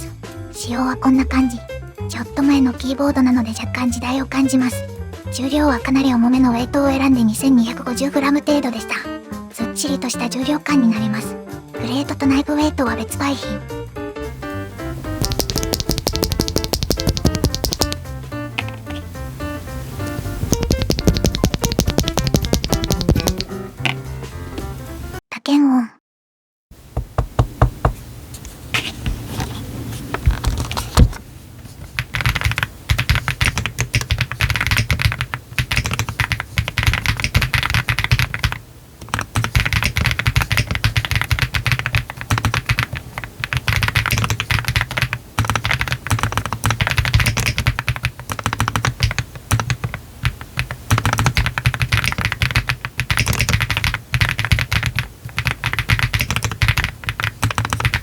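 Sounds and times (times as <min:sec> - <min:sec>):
typing on mechanical keyboard: 0:15.2 - 0:18.8, 0:20.5 - 0:23.5, 0:32.0 - 0:58.0.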